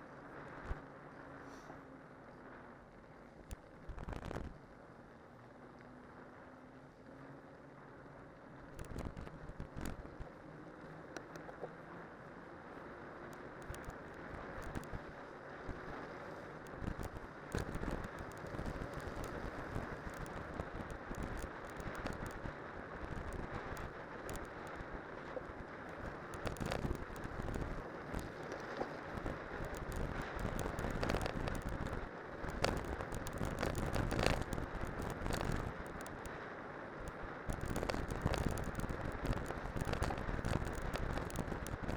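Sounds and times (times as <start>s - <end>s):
bike tyres rolling over snow and ice: 2.5s - 41.9s
wind on microphone: 29.0s - 36.2s, 37.0s - 41.9s.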